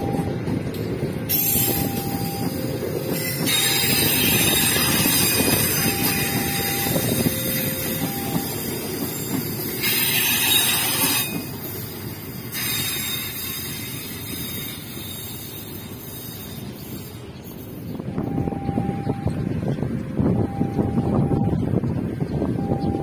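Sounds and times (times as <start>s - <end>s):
train wheels rumbling on rails: 0.0s - 23.0s
hissing squeal: 1.3s - 18.0s
wheel squeals: 1.3s - 18.8s.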